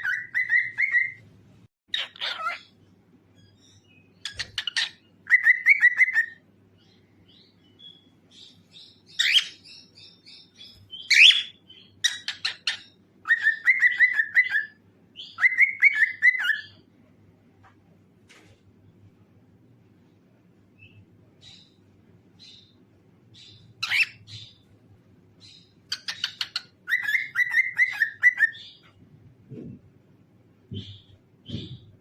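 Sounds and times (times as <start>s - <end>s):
cockatiel chirping and trilling: 0.0s - 1.2s, 1.9s - 2.8s, 3.4s - 6.4s, 7.3s - 16.8s, 23.4s - 24.6s, 25.4s - 28.9s.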